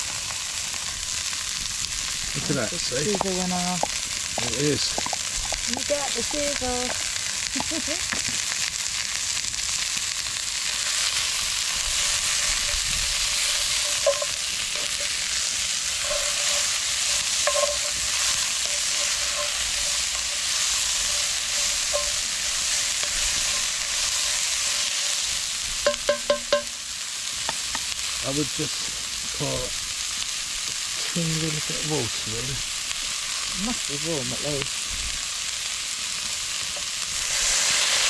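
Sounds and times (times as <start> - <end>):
onion and garlic sizzling in oil: 0.0 - 38.0
utensil clinking against pot: 16.0 - 22.2.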